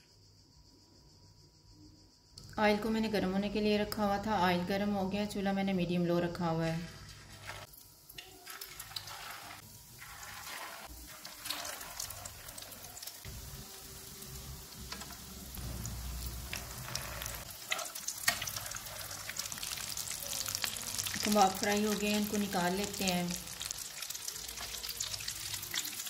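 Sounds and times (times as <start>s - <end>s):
food sizzling in hot oil: 6.9s - 26.0s.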